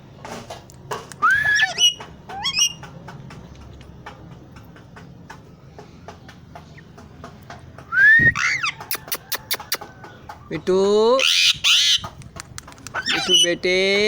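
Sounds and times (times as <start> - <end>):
parrot call: 1.2 - 2.8, 8.0 - 9.6, 13.0 - 13.5
faint clicks and taps: 2.0 - 7.9.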